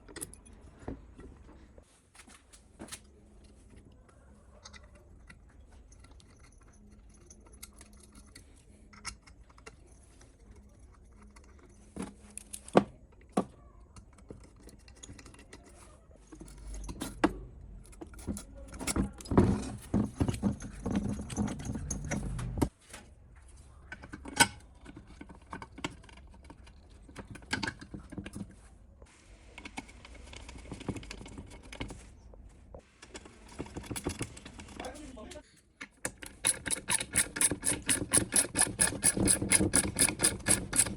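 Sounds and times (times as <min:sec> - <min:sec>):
metal tools clinking: 0:17.8 - 0:22.6.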